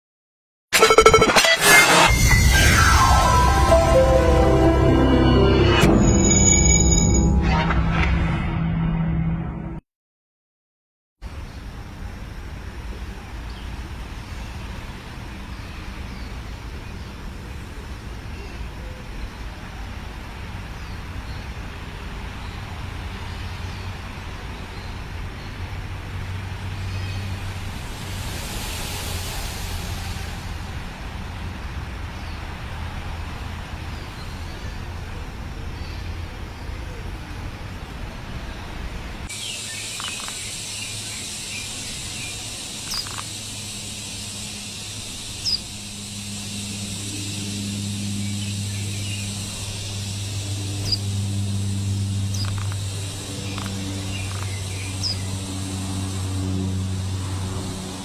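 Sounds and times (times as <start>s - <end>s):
low traffic rumble: 11.2s - 58.0s
brief hiss: 27.7s - 30.8s
faint bird chirps: 39.3s - 43.6s
high insect buzz: 39.4s - 58.0s.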